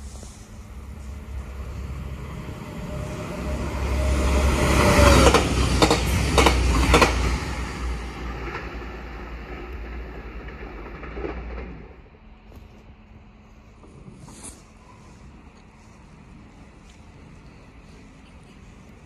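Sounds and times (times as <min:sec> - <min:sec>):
train passing rumble: 0:00.0 - 0:19.0
wheel clacks over rail joints: 0:05.2 - 0:07.4.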